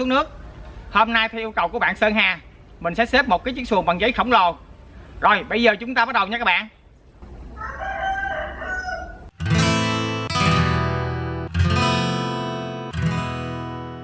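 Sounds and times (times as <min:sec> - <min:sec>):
rooster crowing: 0:07.5 - 0:09.4
acoustic guitar chords: 0:09.3 - 0:14.0.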